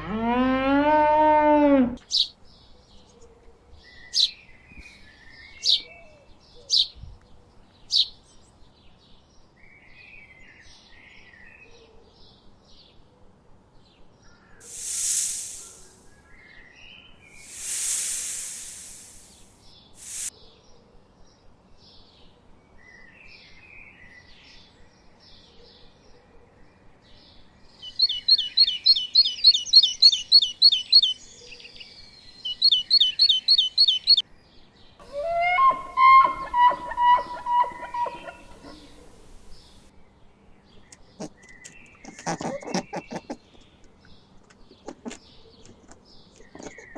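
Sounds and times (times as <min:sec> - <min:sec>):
bird chattering calls: 0:14.6 - 0:16.0, 0:17.4 - 0:19.4, 0:20.0 - 0:20.3, 0:27.8 - 0:34.2, 0:35.0 - 0:39.8
bird trilling: 0:14.6 - 0:16.0, 0:17.4 - 0:19.4, 0:20.0 - 0:20.3, 0:27.8 - 0:34.2, 0:35.0 - 0:39.8
brief rushing noise: 0:14.6 - 0:16.1, 0:17.4 - 0:20.3.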